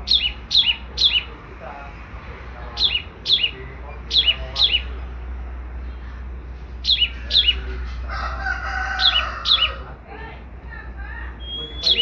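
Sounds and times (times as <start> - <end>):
songbird chirping: 0.0 - 1.5, 2.7 - 5.1, 5.9 - 10.0, 11.2 - 12.0.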